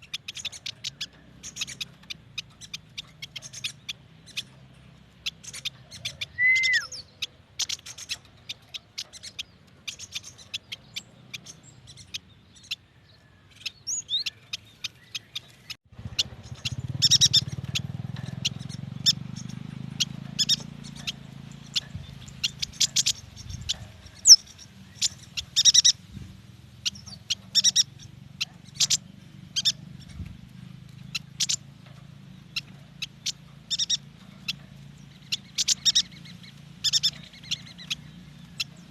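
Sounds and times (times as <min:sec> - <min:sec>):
bird chips and twittering: 0:00.0 - 0:38.9
whistled glides: 0:06.3 - 0:07.0.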